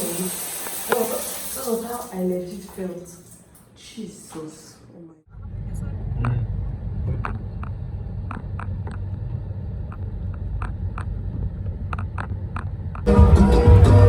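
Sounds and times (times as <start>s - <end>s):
shower water spattering: 0.0s - 3.6s
loud music: 13.1s - 14.0s.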